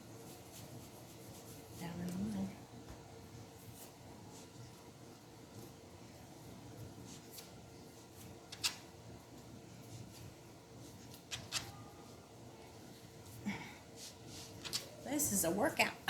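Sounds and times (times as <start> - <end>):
dough kneaded by hand: 0.0 - 16.0.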